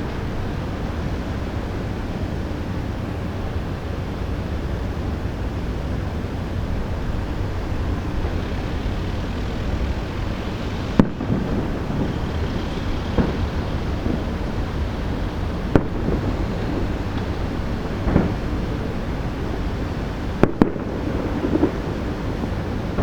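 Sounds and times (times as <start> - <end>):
wind noise on microphone: 0.0 - 23.0
distant firework shells bursting: 7.6 - 23.0.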